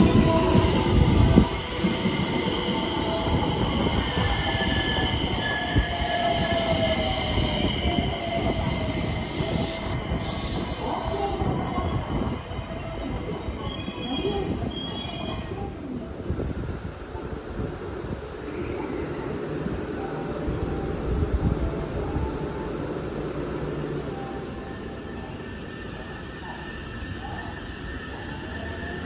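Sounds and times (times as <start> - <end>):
train wheels rumbling on track: 0.0 - 29.0
wheel squeal on rails: 0.1 - 15.5.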